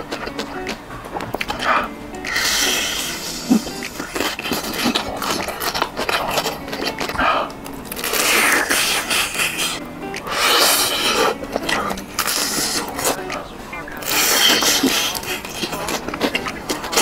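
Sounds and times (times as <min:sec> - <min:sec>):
background music: 0:00.0 - 0:17.0
crunching and chewing food: 0:00.0 - 0:17.0.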